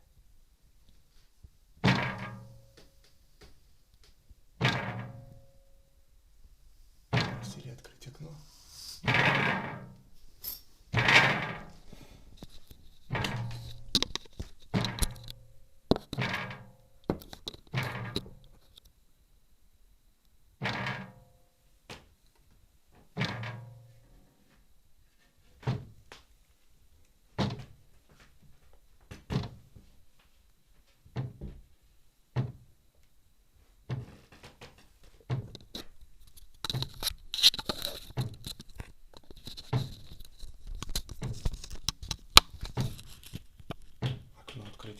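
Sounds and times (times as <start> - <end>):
knocking thuds on a window: 31.1 - 31.7, 32.4 - 32.7, 33.9 - 35.6.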